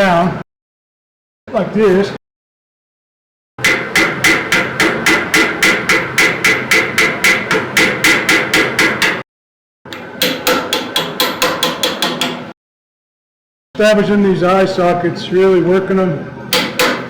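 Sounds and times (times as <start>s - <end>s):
hammer striking steel on anvil: 3.6s - 9.2s, 9.9s - 12.6s, 16.5s - 17.0s.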